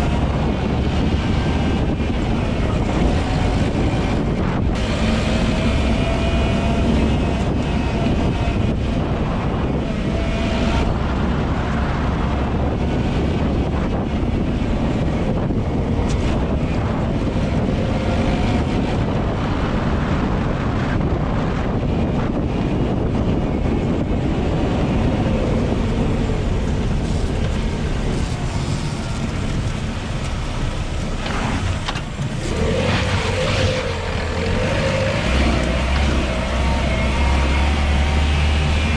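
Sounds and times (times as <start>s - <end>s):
tyres rumbling over bumpy road: 0.0s - 38.9s
car engine running: 1.8s - 9.1s, 24.9s - 38.9s.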